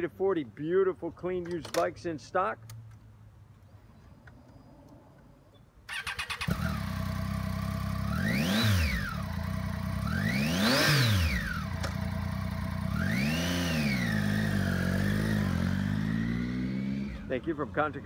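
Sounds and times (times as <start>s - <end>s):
motorcycle engine starting and revving: 5.9s - 18.0s.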